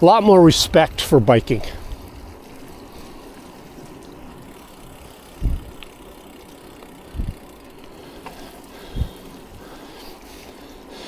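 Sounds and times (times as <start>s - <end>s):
wind noise: 0.0s - 3.2s, 4.0s - 5.9s, 7.0s - 7.5s, 8.8s - 9.8s
bicycle rolling on road: 0.0s - 11.0s.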